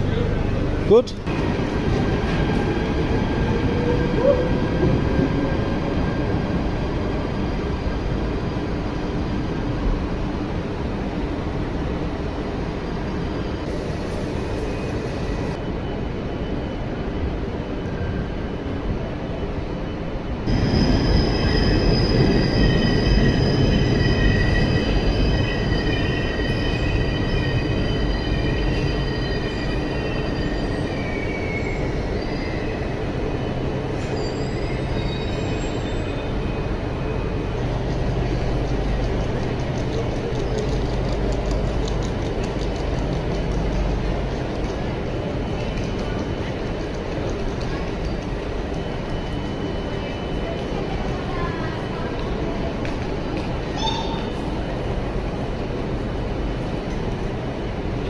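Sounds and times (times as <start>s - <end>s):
electric train rumble: 0.0s - 58.0s
high-pitched train squealing: 12.8s - 18.7s, 19.4s - 37.6s, 53.6s - 55.0s.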